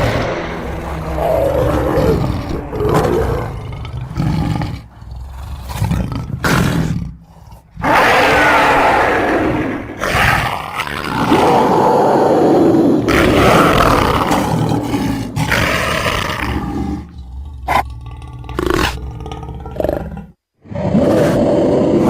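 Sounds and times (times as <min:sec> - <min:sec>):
big cat monster roars: 0:00.0 - 0:22.0.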